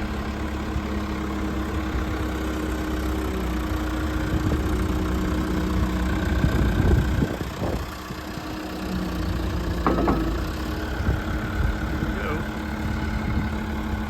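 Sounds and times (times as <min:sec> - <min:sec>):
diesel engine idling: 0:00.0 - 0:14.0
short knocks: 0:09.6 - 0:11.2.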